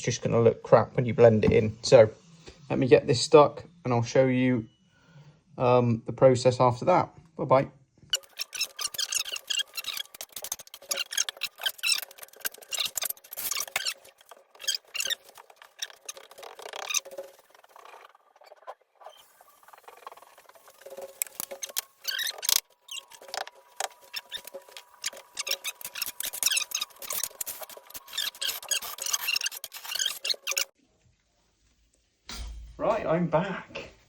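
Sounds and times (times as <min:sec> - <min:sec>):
scratching and clicking of tools: 0:08.1 - 0:30.8.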